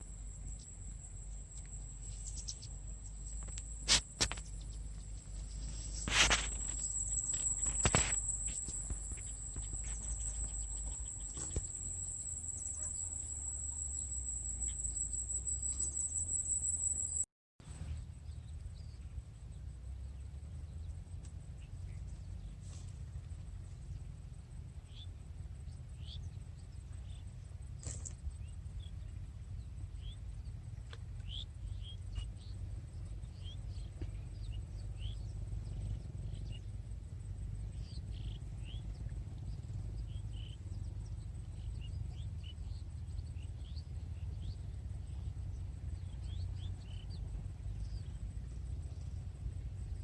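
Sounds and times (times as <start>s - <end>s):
insects trilling: 0.0s - 17.2s, 27.8s - 50.0s
low outdoor rumble: 0.0s - 50.0s.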